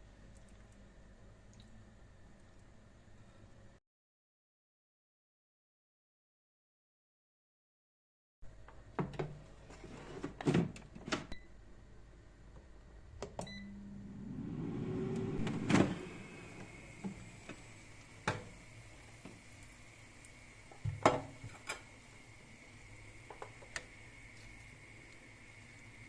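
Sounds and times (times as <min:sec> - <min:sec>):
air fryer fan whine: 0:11.4 - 0:26.0.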